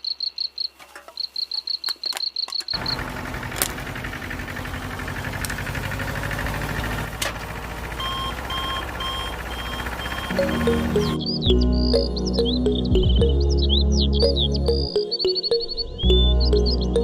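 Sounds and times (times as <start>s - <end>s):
small motor running: 2.8s - 10.9s
fast high-pitched beeping: 8.0s - 13.4s
two-tone beep: 8.0s - 13.4s.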